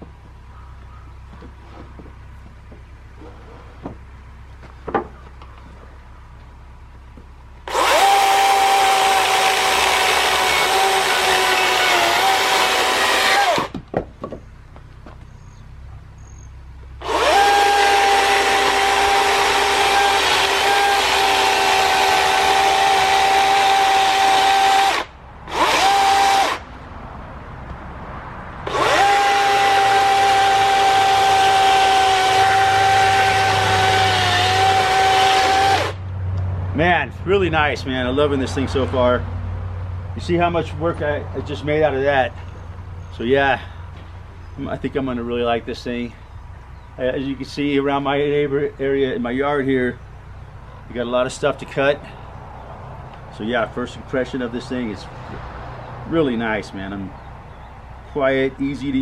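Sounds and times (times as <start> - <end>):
electric chainsaw whine: 7.6 - 13.8, 17.0 - 26.7, 28.6 - 36.0.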